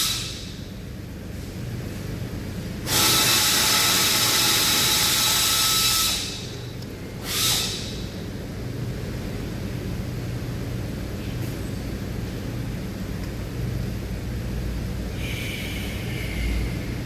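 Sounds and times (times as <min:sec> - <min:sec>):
compressed air hissing: 0:00.0 - 0:00.7, 0:02.8 - 0:06.6, 0:07.2 - 0:08.2
steady low hum: 0:00.0 - 0:17.0.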